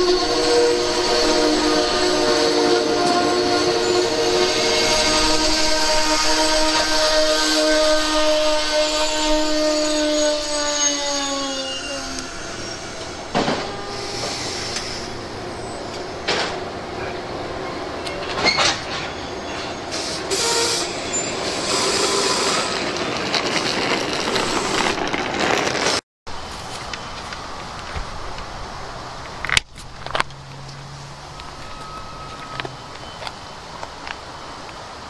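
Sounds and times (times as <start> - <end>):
train horn chord: 0.0 - 17.3, 20.3 - 21.1
train rumbling past: 0.0 - 35.0
wheels clunking over rail joints: 0.0 - 35.0.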